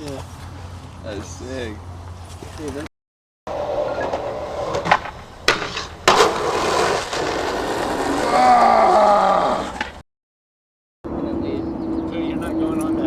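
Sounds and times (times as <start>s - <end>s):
skateboard clacks: 3.5s - 8.4s, 9.6s - 10.0s
skateboard wheels rolling on pavement: 3.5s - 10.0s.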